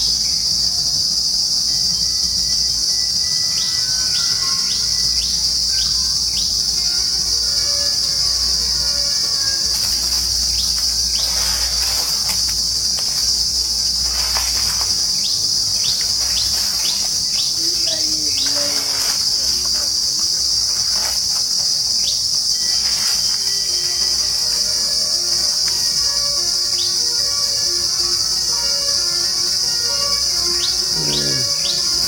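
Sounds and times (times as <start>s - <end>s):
insects droning: 0.0s - 32.0s
bird chirps: 26.2s - 32.0s.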